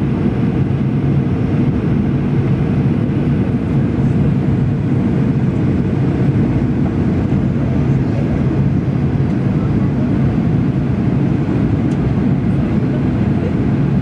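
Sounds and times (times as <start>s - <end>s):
jet engine and airflow drone: 0.0s - 14.0s.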